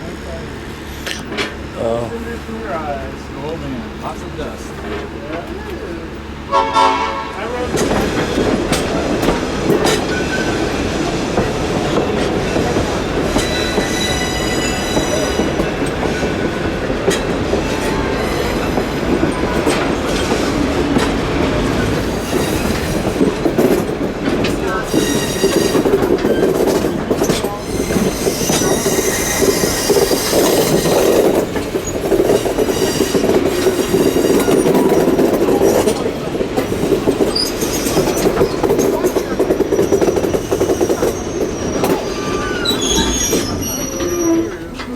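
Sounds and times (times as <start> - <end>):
train rumble: 0.0 - 44.9
wheels clacking over rail joints: 0.3 - 44.9
high wheel squeal: 13.4 - 15.6, 17.8 - 18.8, 24.8 - 26.6, 27.5 - 31.2, 31.8 - 34.9, 37.3 - 38.6, 39.7 - 44.9.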